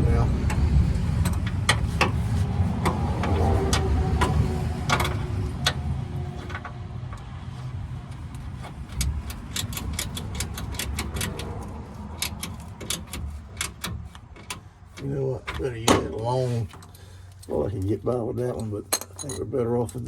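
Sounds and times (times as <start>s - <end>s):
socket ratchet clicking: 8.2s - 14.7s.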